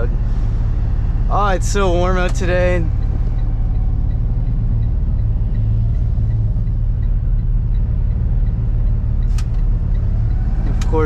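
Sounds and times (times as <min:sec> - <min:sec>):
pickup truck engine and road noise: 0:00.0 - 0:11.0.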